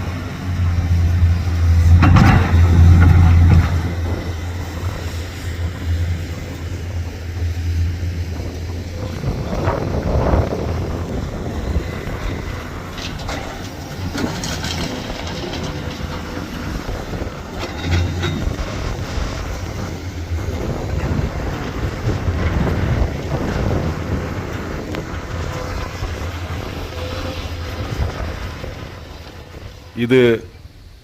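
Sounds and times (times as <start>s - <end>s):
vehicle rumbling: 0.0s - 31.0s
wind buffeting microphone: 0.0s - 31.0s.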